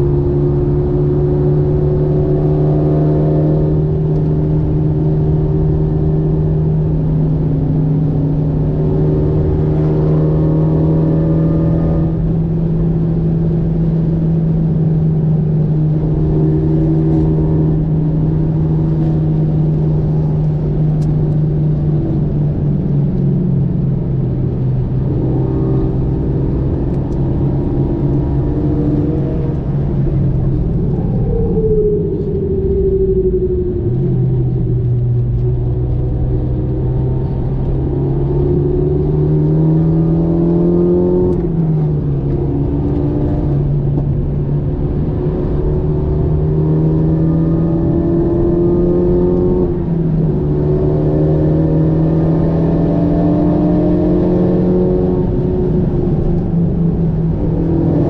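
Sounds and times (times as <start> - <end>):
car engine under load: 0.0 - 58.0
road and tyre noise: 0.0 - 58.0.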